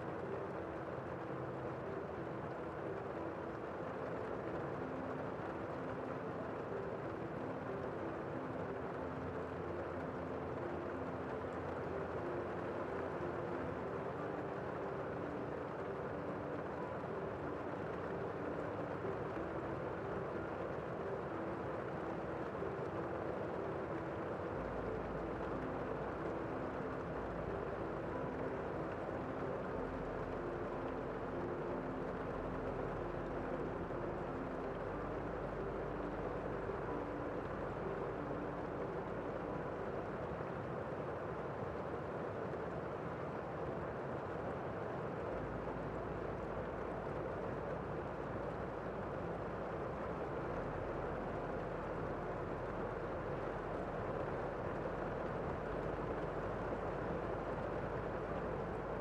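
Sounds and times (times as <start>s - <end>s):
low hum: 0.0s - 59.0s
steady rain: 0.0s - 59.0s.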